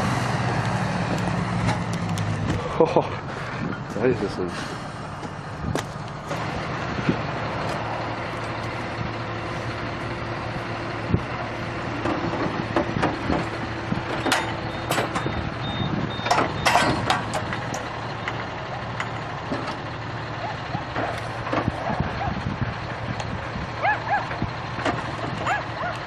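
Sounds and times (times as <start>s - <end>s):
heavy vehicle engine running: 0.0s - 26.0s
knocks and clanks: 11.9s - 15.5s, 16.1s - 20.0s, 20.7s - 23.4s, 24.3s - 25.8s.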